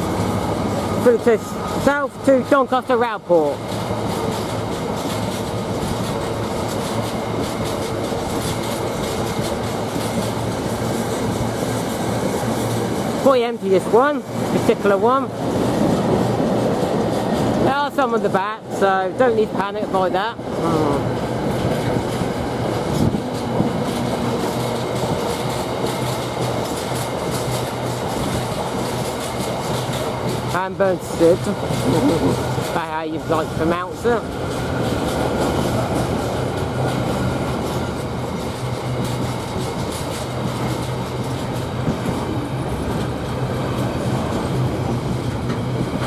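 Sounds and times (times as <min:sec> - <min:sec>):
freight wagons rumbling: 0:00.0 - 0:46.0
low steady locomotive hum: 0:00.0 - 0:46.0
wheels clicking over rail joints: 0:00.0 - 0:46.0.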